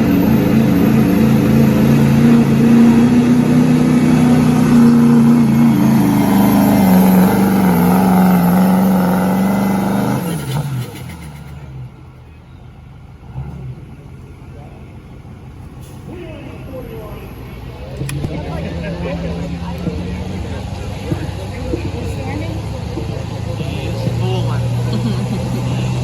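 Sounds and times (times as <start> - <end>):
diesel truck engine at full throttle: 0.0 - 26.0.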